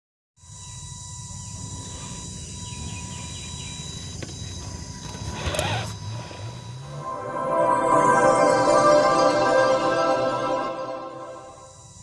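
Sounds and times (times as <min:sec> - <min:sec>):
faint chirps: 0:00.4 - 0:07.0
rising whoosh: 0:06.8 - 0:11.6.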